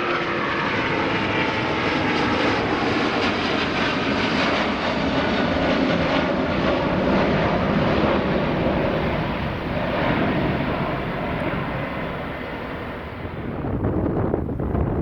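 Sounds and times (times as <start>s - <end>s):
jet engines at takeoff: 0.0s - 15.0s
wind on microphone: 5.0s - 15.0s.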